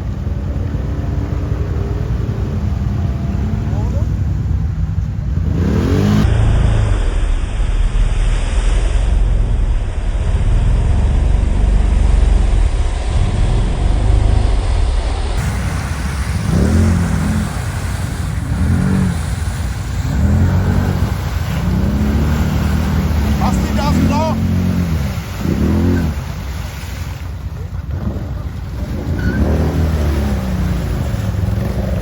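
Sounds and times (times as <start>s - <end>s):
quad bike engine revving: 5.4s - 6.8s, 15.4s - 26.7s, 27.5s - 32.0s.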